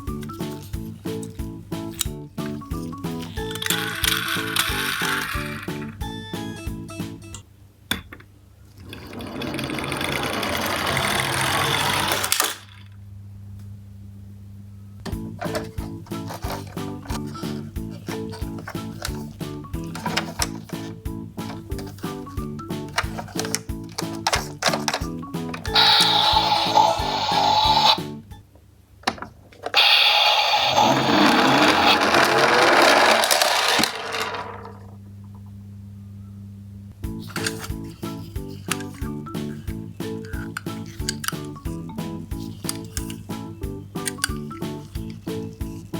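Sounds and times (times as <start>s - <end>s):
toy wheels whirring: 0.2s - 6.0s, 8.8s - 12.8s, 15.4s - 22.3s, 22.9s - 28.0s, 29.7s - 34.9s, 37.2s - 43.3s, 44.0s - 45.9s
toy truck clattering: 0.3s - 6.0s, 8.8s - 12.8s, 15.4s - 22.3s, 22.9s - 28.0s, 29.1s - 34.9s, 37.2s - 41.7s, 42.3s - 43.2s, 44.0s - 45.9s
steady low hum: 34.6s - 45.9s.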